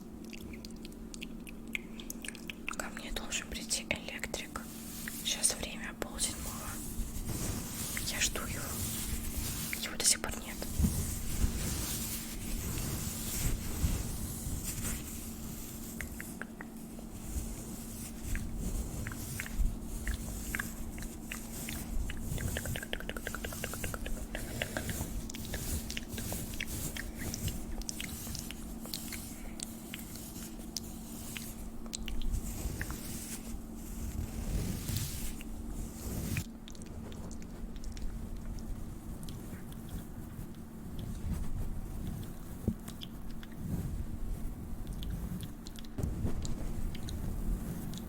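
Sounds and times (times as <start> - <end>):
wet mouth clicks and smacks: 0.0 - 3.0, 16.0 - 16.8, 20.1 - 26.6, 31.8 - 32.3, 42.9 - 43.6, 44.9 - 46.0
faint steady hum: 0.0 - 48.0.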